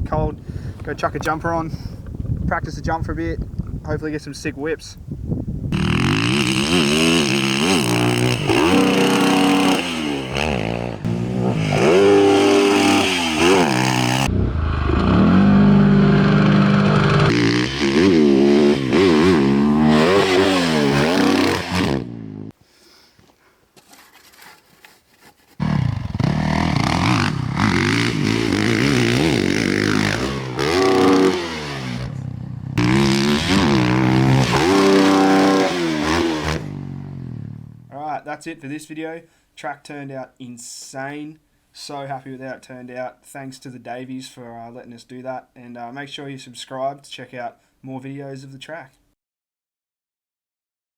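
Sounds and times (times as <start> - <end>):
motocross bike engine revving: 5.8 - 22.5, 25.6 - 37.9.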